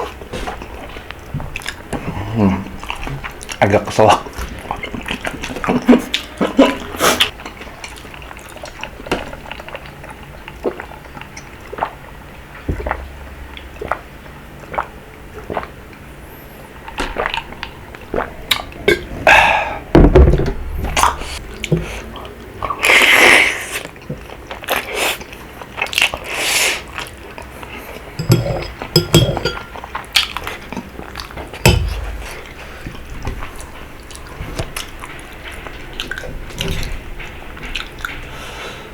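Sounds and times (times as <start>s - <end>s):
wet chewing: 0.0s - 16.0s, 16.7s - 19.1s, 21.0s - 28.2s, 28.8s - 38.5s
slurping noodles: 22.7s - 24.0s
utensil tapping bowl: 28.2s - 29.7s, 31.6s - 32.1s.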